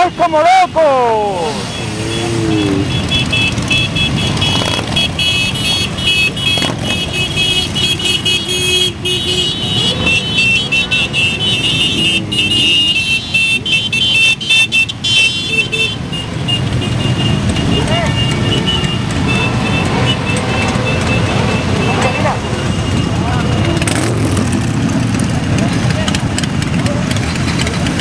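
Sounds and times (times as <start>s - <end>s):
high-pitched horn tooting: 0.0s - 16.0s
motorcycle engines rumbling: 0.0s - 28.0s.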